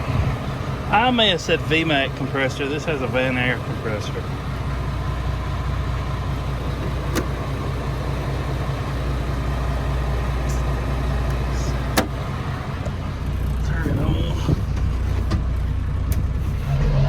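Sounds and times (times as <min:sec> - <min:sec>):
diesel truck idling: 0:00.0 - 0:17.0.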